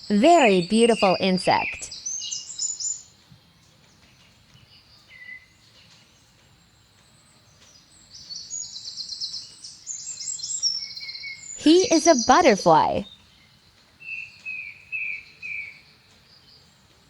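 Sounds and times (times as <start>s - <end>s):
birds chirping in trills: 0.0s - 3.1s, 7.2s - 16.7s.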